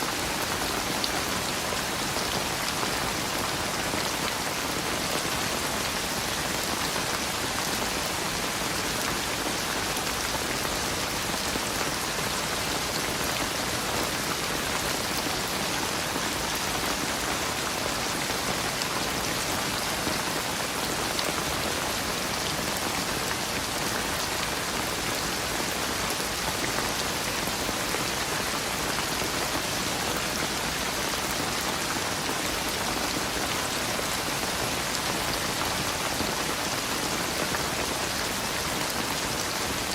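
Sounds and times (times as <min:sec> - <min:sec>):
heavy rain patter: 0:00.0 - 0:39.9.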